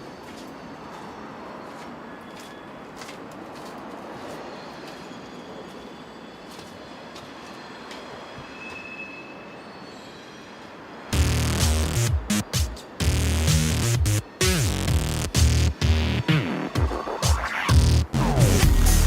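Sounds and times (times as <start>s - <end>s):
high wheel squeal: 0.0s - 3.0s, 4.1s - 11.6s
train rumbling past: 0.0s - 19.0s.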